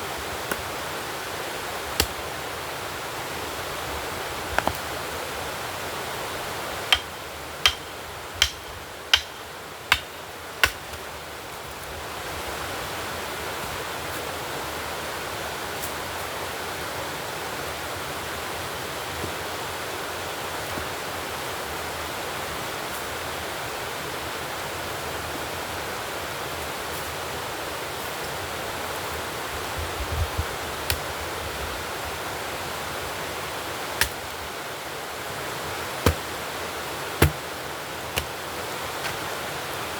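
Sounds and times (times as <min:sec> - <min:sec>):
sharp knocks: 0:37.2 - 0:37.4.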